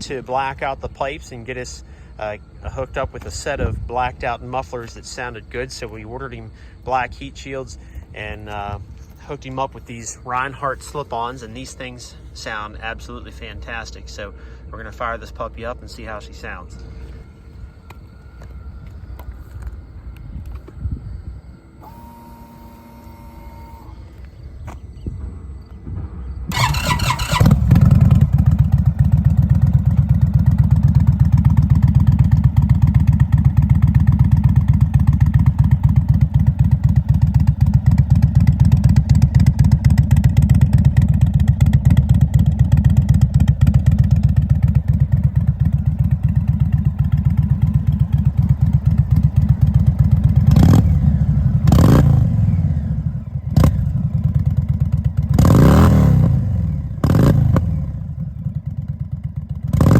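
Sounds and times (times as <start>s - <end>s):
motorcycle engine idling: 0.0s - 59.9s
motorcycle throttle revs: 26.5s - 59.9s.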